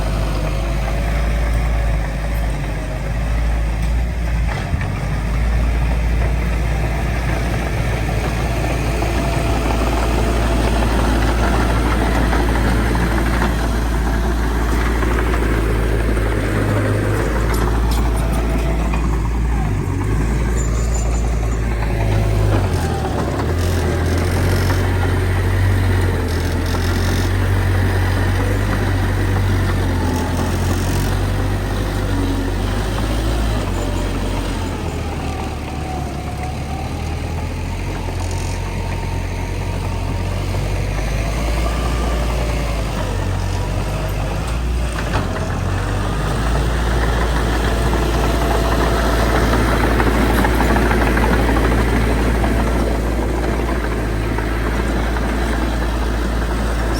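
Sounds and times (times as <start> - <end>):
heavy diesel engine droning: 0.0 - 56.9.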